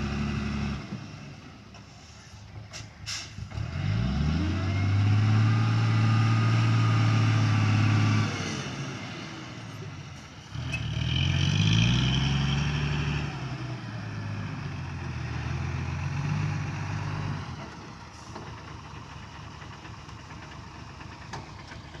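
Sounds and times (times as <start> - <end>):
diesel truck engine revving: 0.0 - 1.6, 2.5 - 22.0.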